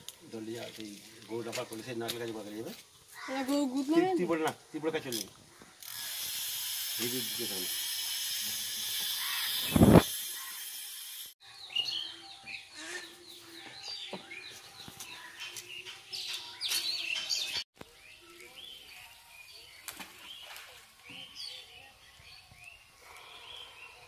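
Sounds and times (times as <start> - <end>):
steady hiss: 6.2 - 11.3
small birds chirping: 11.4 - 24.0.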